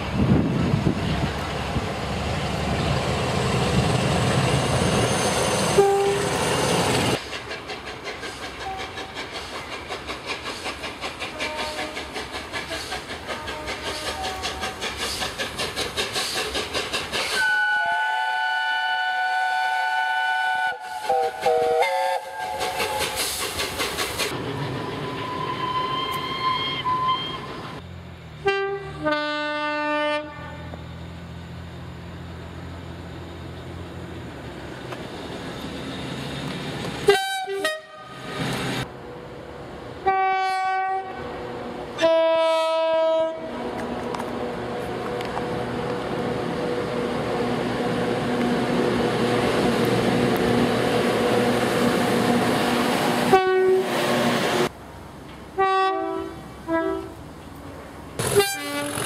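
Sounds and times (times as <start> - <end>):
train rushing by: 0.0 - 59.0
train horn: 5.7 - 6.4, 11.3 - 12.0, 17.4 - 23.0, 28.4 - 30.8, 37.1 - 38.2, 40.0 - 41.3, 42.0 - 43.5, 53.2 - 53.9, 55.6 - 57.2, 58.2 - 59.0
wheels clicking over rail joints: 7.1 - 17.6.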